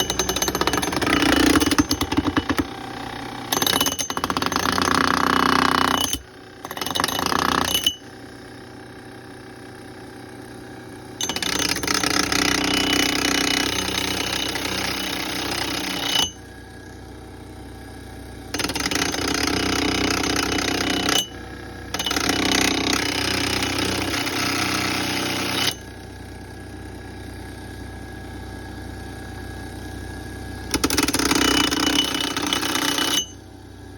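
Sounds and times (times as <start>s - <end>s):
axe grinding on abrasive wheel: 0.0s - 2.7s, 3.5s - 8.0s.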